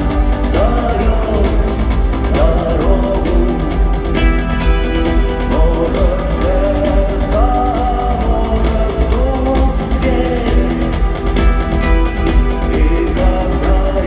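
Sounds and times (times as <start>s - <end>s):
rock band playing live: 0.0s - 14.0s.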